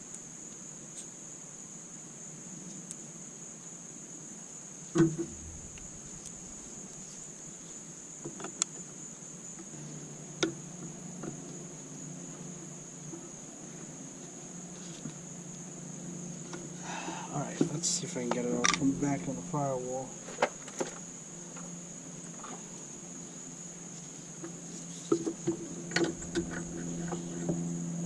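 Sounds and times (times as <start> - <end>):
steady high-pitched tone: 5.1 - 7.7, 18.5 - 20.3.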